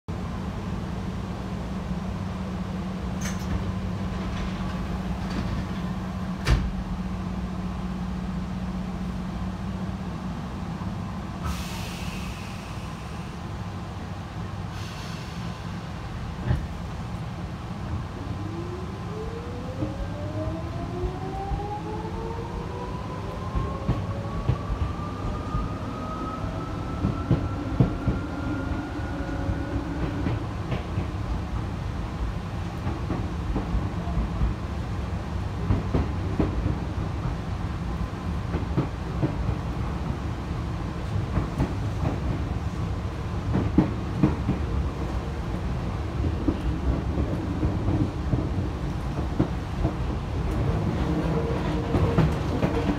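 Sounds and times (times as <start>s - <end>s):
train wheels rumbling on rails: 0.1s - 52.9s
clacks over rail joints: 30.0s - 31.2s, 43.5s - 44.7s, 46.2s - 52.9s.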